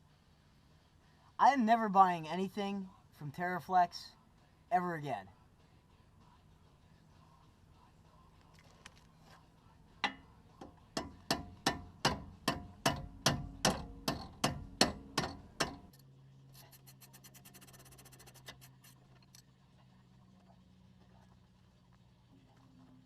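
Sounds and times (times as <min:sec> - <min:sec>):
hammer striking metal: 0:11.0 - 0:15.9.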